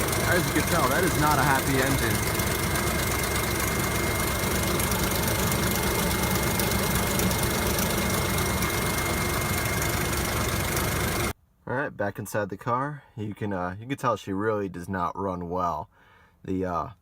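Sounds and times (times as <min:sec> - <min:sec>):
car engine idling roughly: 0:00.0 - 0:11.3
high whine: 0:00.0 - 0:11.3.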